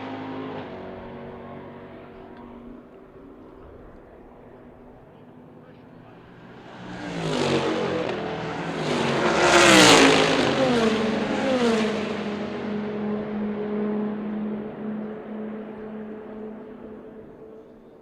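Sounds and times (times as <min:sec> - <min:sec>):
race car passing at speed: 0:05.4 - 0:17.8.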